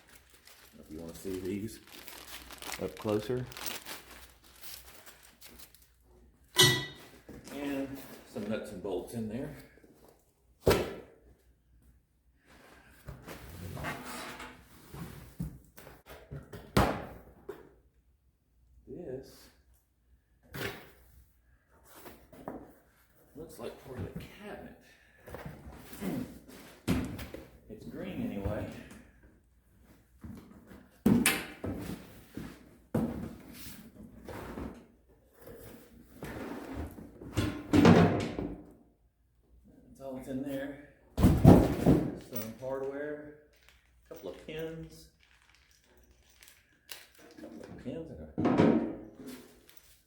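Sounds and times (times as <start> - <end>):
packaging rustling and scraping: 0.0 - 6.0.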